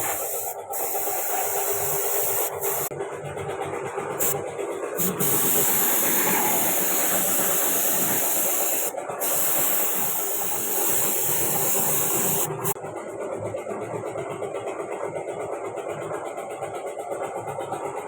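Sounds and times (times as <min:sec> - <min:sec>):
paint spray gun hissing: 0:00.0 - 0:02.9, 0:05.0 - 0:12.8.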